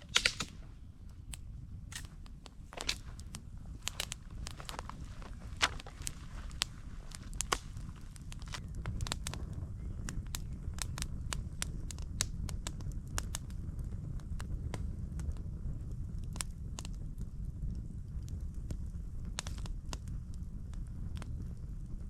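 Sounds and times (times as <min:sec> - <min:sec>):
footsteps crackling on forest floor: 0:00.0 - 0:00.6, 0:01.9 - 0:09.2
steady low rumble: 0:00.0 - 0:22.0.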